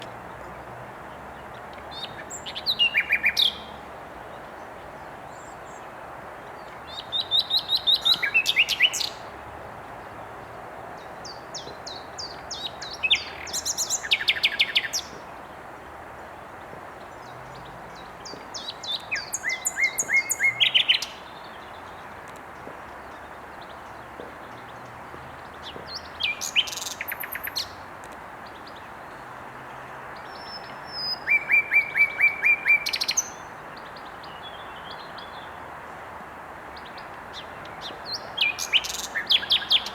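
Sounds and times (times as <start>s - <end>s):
nightingale singing: 6.9s - 9.2s, 11.3s - 15.2s, 17.2s - 21.9s, 25.6s - 27.8s, 30.3s - 33.4s, 36.9s - 39.9s.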